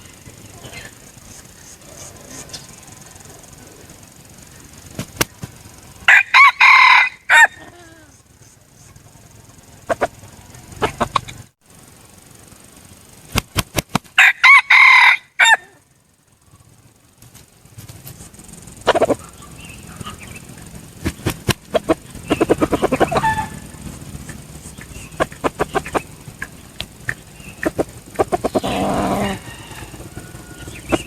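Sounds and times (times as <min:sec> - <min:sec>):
sharp clicks: 0:00.0 - 0:11.5, 0:12.7 - 0:14.5, 0:17.2 - 0:31.0
rooster crowing: 0:05.9 - 0:08.2, 0:14.2 - 0:15.8, 0:21.8 - 0:23.9, 0:27.4 - 0:31.0
rooster clucking: 0:06.1 - 0:11.5, 0:18.8 - 0:31.0.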